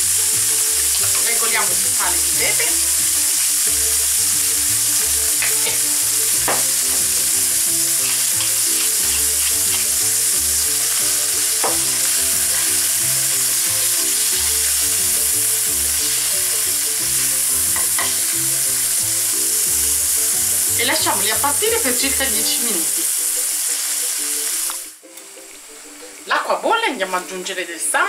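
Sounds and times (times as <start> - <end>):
tomatoes and garlic sizzling in oil: 0.0 - 28.0
spatula knocking against pan: 6.4 - 7.0.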